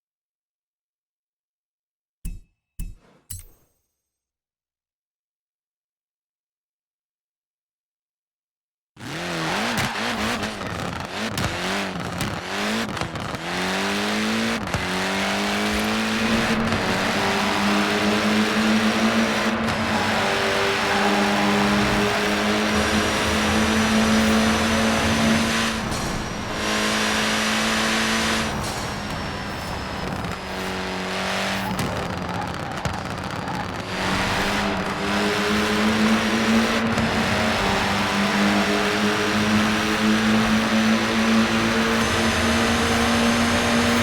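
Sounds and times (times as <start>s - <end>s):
car engine running: 9.0s - 44.0s.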